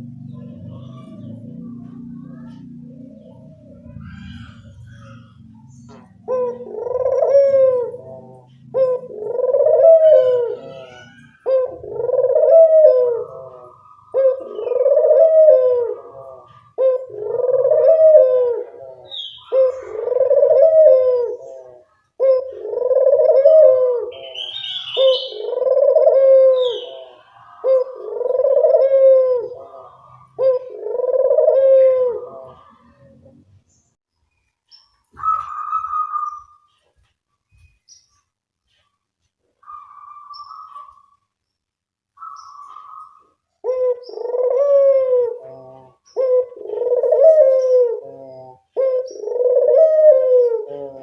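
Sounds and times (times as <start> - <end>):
dove cooing: 0.0 - 33.5, 35.1 - 36.7, 39.6 - 41.3, 42.2 - 51.0
small bird chirping: 33.6 - 44.4.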